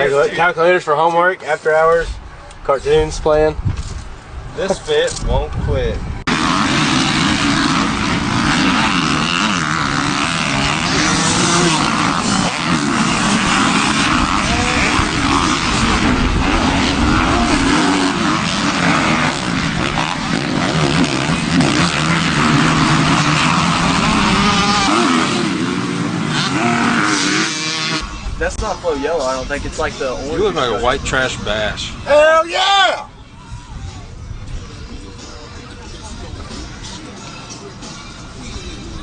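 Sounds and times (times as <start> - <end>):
motor engines running loudly: 3.5 - 32.3, 33.1 - 39.0.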